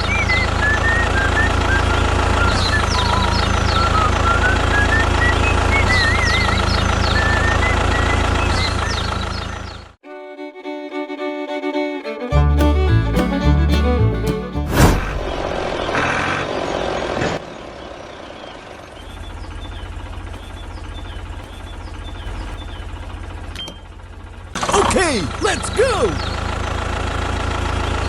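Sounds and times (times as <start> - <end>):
fiddle melody over drone: 10.0 - 15.6
music with steady beat: 12.2 - 14.7.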